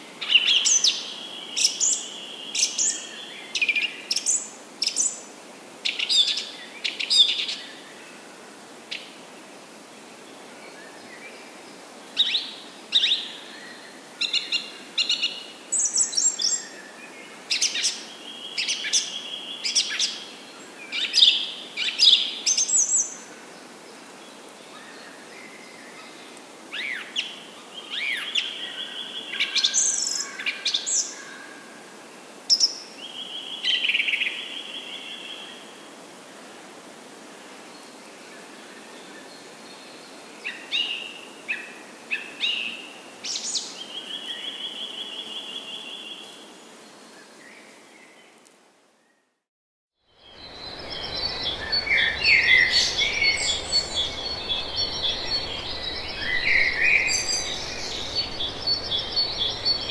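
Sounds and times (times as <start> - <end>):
birds chirping and trilling: 50.2 - 59.9
whistled bird notes: 50.2 - 59.9.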